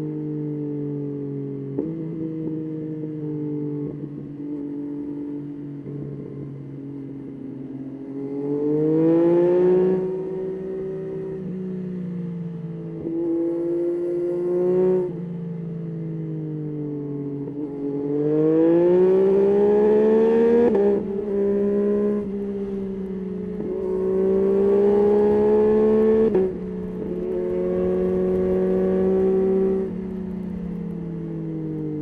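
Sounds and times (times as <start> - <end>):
motorcycle engine revving: 18.2 - 32.0.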